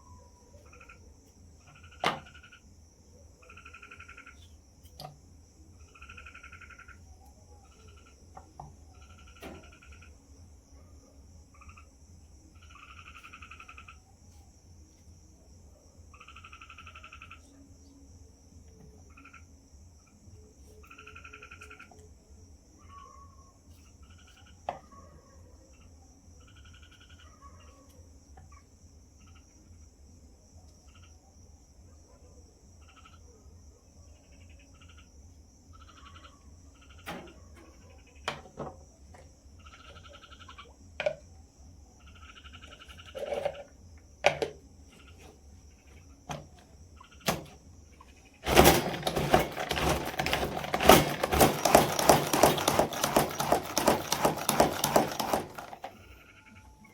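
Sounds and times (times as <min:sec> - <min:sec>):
high-pitched insect chorus: 0:00.0 - 0:24.7
frogs calling in pulsed bursts: 0:00.6 - 0:04.5, 0:05.7 - 0:07.0, 0:07.7 - 0:08.2, 0:11.5 - 0:12.0, 0:12.6 - 0:14.0, 0:16.1 - 0:17.5, 0:19.1 - 0:19.6, 0:20.9 - 0:21.8, 0:25.7 - 0:27.3, 0:29.2 - 0:29.8, 0:30.9 - 0:31.2, 0:32.8 - 0:33.3, 0:34.2 - 0:37.0, 0:39.6 - 0:40.9, 0:41.9 - 0:42.9.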